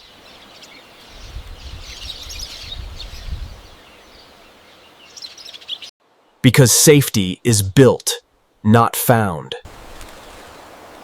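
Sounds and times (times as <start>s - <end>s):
small birds chirping: 0.0s - 6.4s, 9.9s - 11.0s.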